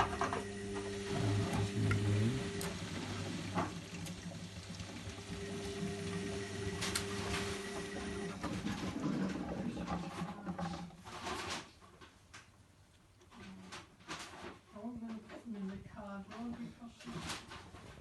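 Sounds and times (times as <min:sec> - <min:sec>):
washing machine drain pump humming: 0:00.0 - 0:10.3.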